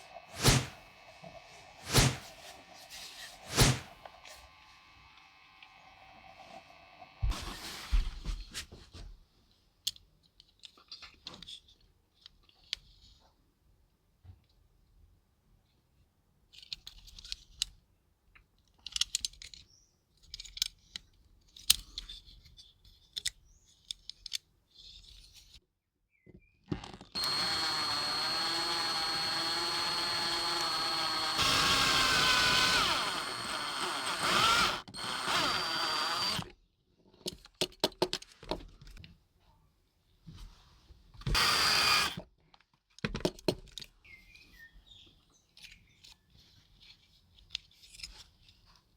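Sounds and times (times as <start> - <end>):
electric drill running: 0.0 - 0.8, 1.8 - 2.3, 3.5 - 3.9, 27.2 - 36.5, 41.3 - 42.2
small parts clicking and tapping: 9.8 - 13.0, 16.5 - 25.5.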